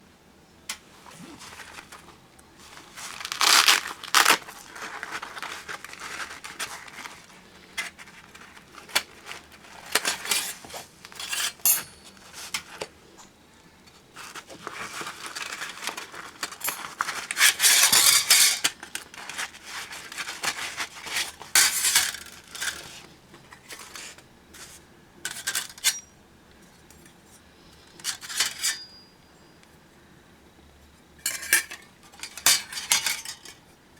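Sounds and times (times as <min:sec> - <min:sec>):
metal plates clinking and rattling: 0:15.3 - 0:19.4, 0:31.2 - 0:33.6.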